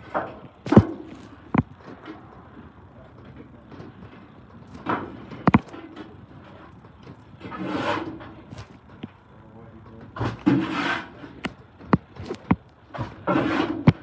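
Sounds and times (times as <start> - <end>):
metal scraping: 3.7 - 9.1, 10.2 - 14.0.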